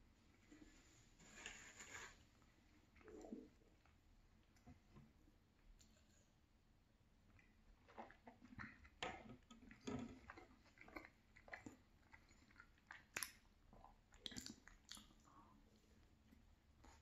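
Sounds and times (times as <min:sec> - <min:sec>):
person chewing and swallowing: 0:07.3 - 0:17.0
mouth smacks and clicks: 0:10.3 - 0:15.2.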